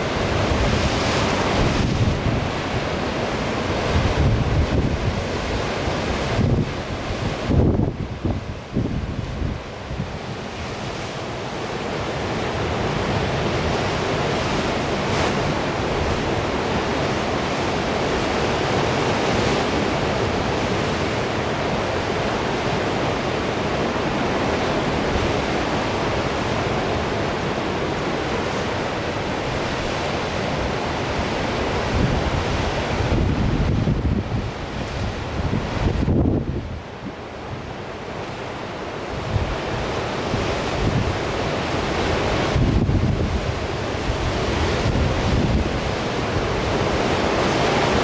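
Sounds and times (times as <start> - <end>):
wind buffeting microphone: 0.0 - 3.0, 3.6 - 10.6, 29.5 - 37.6, 39.2 - 48.0
sea surf breaking: 0.0 - 48.0.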